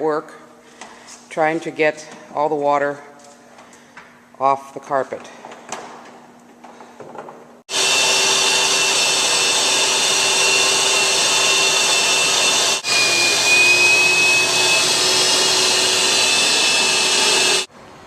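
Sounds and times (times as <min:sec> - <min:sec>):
shop vacuum running: 0:05.3 - 0:17.7.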